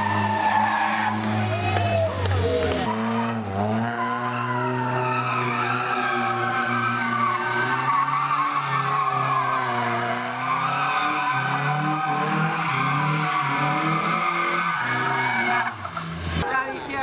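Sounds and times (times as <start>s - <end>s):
rally car engine revving: 0.0s - 16.5s.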